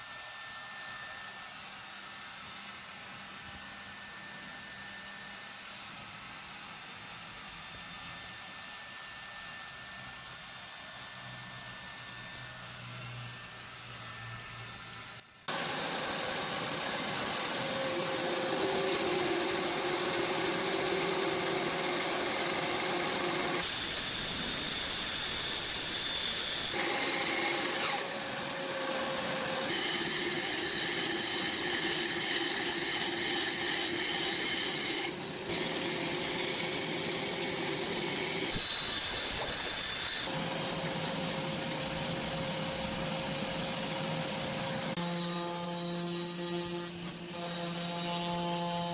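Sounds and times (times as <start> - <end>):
power tool running on wood: 15.5 - 48.9.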